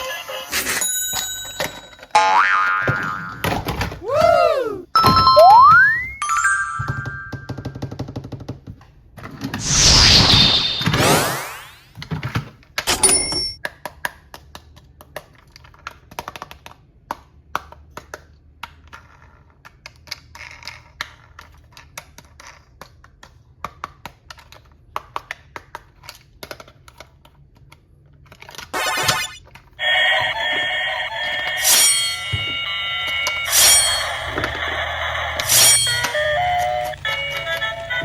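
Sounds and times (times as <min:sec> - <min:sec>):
electronic toy alarm tone: 0:05.0 - 0:07.4, 0:28.8 - 0:38.0
plastic toys clicking: 0:13.6 - 0:28.7, 0:34.1 - 0:38.0.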